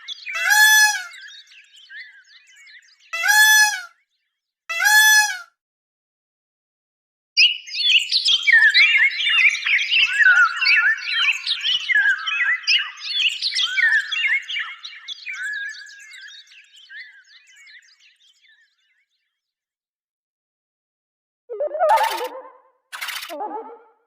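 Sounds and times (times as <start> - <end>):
small birds chirping: 0.0 - 4.3, 7.4 - 19.3, 21.5 - 23.9.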